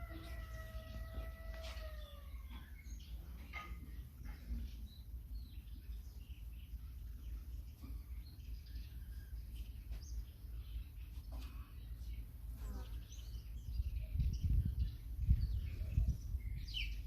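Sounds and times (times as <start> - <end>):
birds chirping: 0.0 - 17.0
steady low rumble: 13.2 - 17.0.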